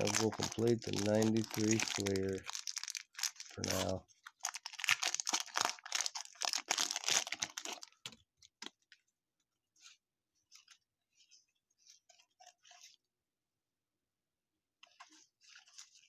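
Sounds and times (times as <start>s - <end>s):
trading cards being handled: 0.0s - 8.8s
plastic wrapper crinkling and tearing: 0.0s - 9.0s.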